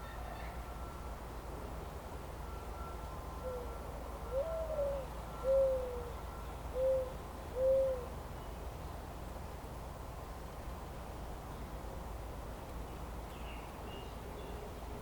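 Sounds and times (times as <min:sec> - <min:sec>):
owl hooting: 0:03.4 - 0:06.1, 0:06.8 - 0:08.1.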